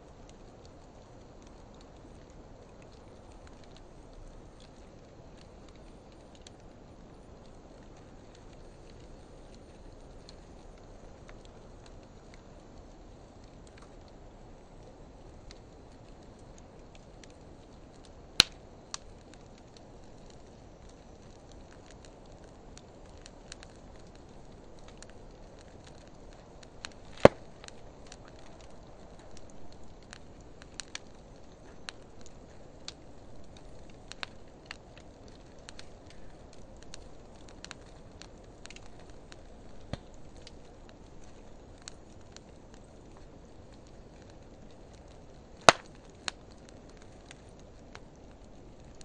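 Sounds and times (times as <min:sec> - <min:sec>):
wood fire hissing and crackling: 0:00.0 - 0:49.0
loud sharp pops from fire: 0:13.4 - 0:49.0.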